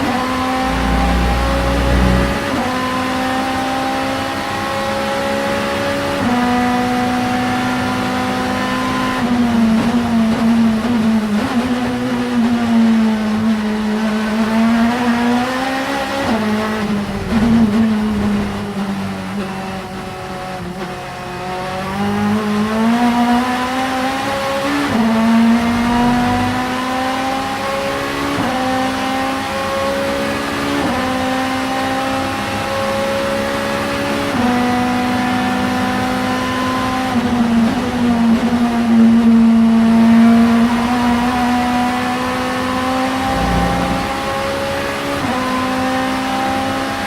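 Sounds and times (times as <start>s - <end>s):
race car engine revving through gears: 0.0s - 47.0s.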